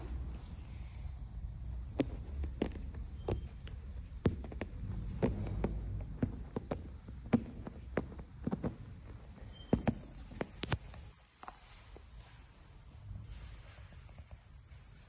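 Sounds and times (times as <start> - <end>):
low steady rumble: 0.0 - 9.4.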